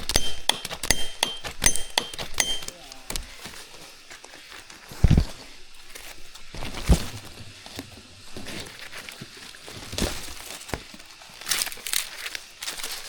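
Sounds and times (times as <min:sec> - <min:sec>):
sharp knocks: 0:00.0 - 0:03.4.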